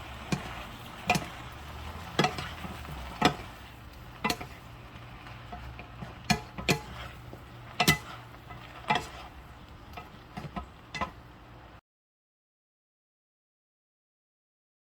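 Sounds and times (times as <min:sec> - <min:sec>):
utensil clinking against cookware: 0:00.0 - 0:11.6.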